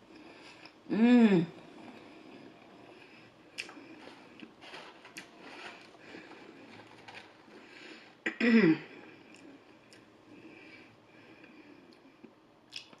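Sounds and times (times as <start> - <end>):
chewing and mouth noises: 12.2 - 13.0.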